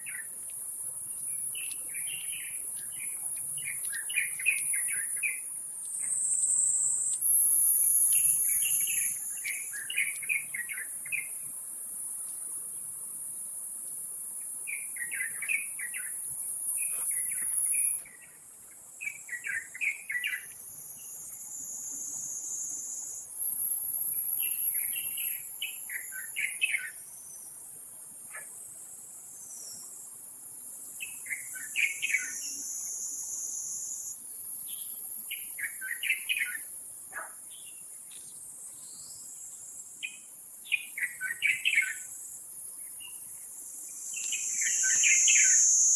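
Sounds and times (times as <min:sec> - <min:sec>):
high-pitched insect drone: 0:31.2 - 0:36.7, 0:40.7 - 0:45.9.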